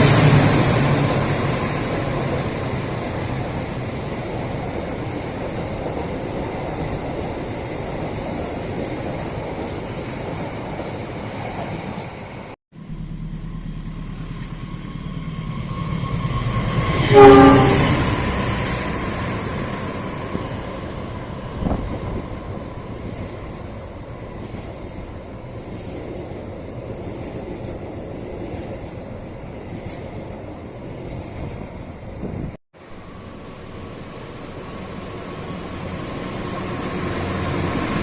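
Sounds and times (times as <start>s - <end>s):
train rumbling on tracks: 0.0s - 38.0s
train horn blast: 15.7s - 18.7s.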